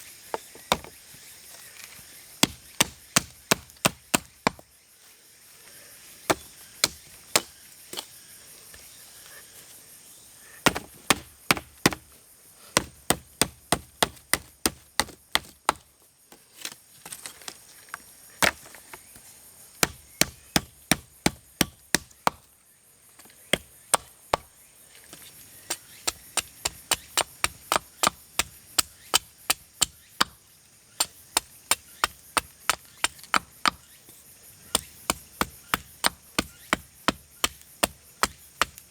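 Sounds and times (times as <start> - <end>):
faint insect drone: 0.0 - 38.9
hand tool chopping wood: 0.3 - 1.0, 2.4 - 4.6, 6.3 - 8.1, 10.6 - 12.1, 12.8 - 15.9, 18.4 - 18.8, 19.8 - 22.5, 23.5 - 24.5, 25.1 - 30.4, 31.0 - 34.1, 34.7 - 38.9.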